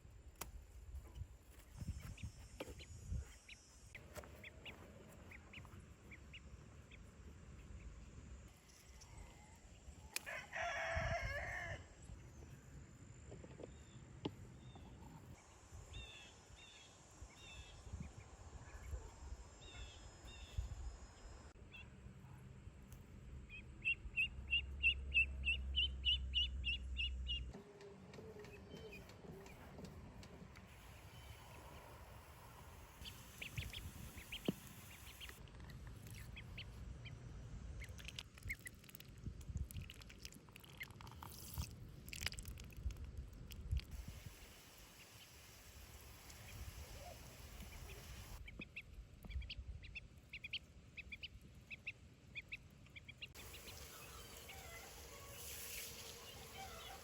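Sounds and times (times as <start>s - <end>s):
rooster crowing: 10.3s - 11.9s
high chirps of poultry: 47.0s - 57.0s.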